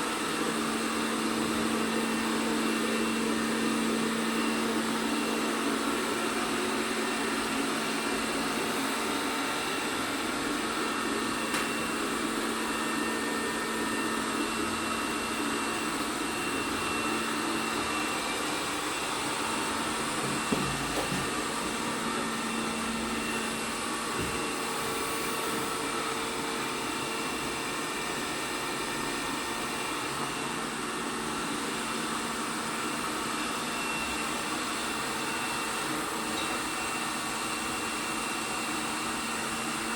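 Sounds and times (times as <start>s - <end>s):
robot vacuum whirring: 9.8s - 26.0s.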